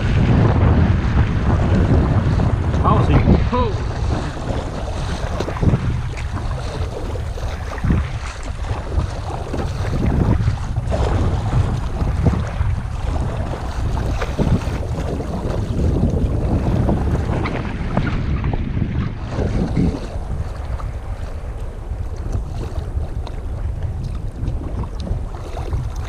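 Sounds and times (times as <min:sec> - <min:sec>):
water lapping and splashing: 0:00.0 - 0:26.0
wind buffeting microphone: 0:00.0 - 0:26.0.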